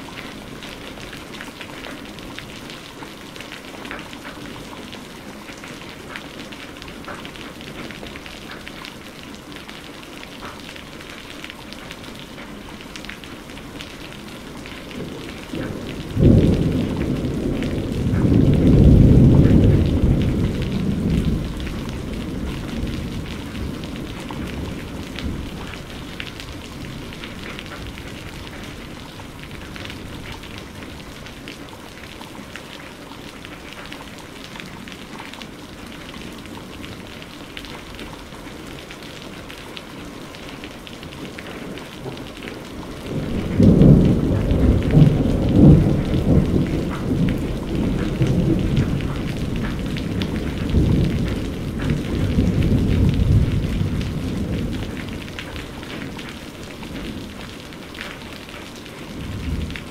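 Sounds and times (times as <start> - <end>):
rain falling: 0.0 - 59.9
thunder: 14.9 - 30.4, 43.0 - 56.2.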